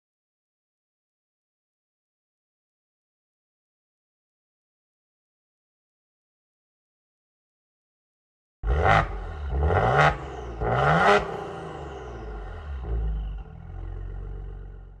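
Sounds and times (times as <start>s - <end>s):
car engine revving and idling: 8.6s - 15.0s.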